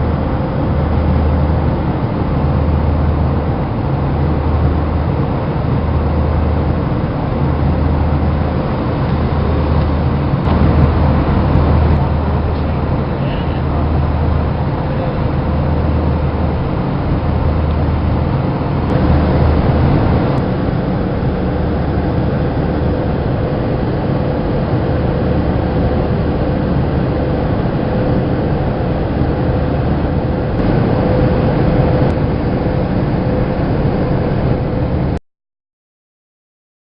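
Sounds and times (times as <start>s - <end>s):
jet engine and airflow drone: 0.0s - 35.2s
steady mid-pitched tone: 10.4s - 16.2s, 29.6s - 35.2s.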